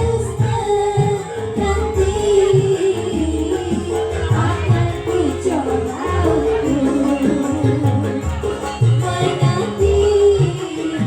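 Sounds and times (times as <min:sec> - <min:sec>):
drums beating: 0:00.0 - 0:11.0
wavering melody: 0:00.0 - 0:11.0.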